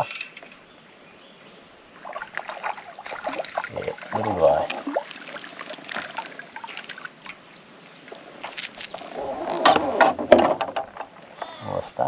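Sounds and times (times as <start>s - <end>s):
handling clicks and knocks: 0.0s - 0.7s, 8.4s - 9.1s, 9.7s - 11.4s
water splashing and dripping: 1.9s - 9.8s.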